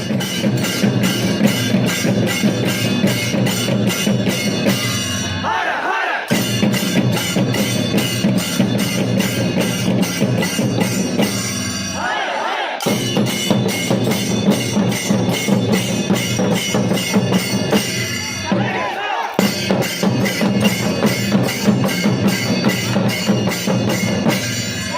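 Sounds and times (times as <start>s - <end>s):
drum ensemble playing: 0.0s - 24.9s.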